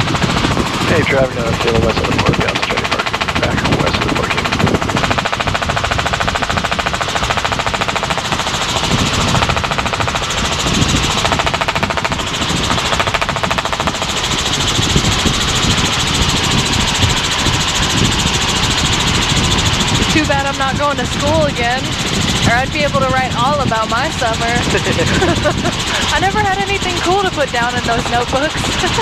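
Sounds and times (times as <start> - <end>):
helicopter rotor beating: 0.0 - 29.0.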